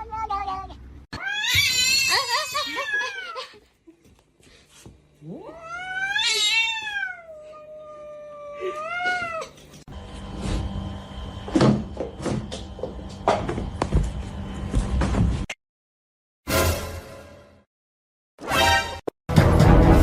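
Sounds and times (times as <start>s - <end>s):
cat yowling: 1.1s - 3.4s, 5.3s - 9.5s
steady hum: 9.9s - 14.9s.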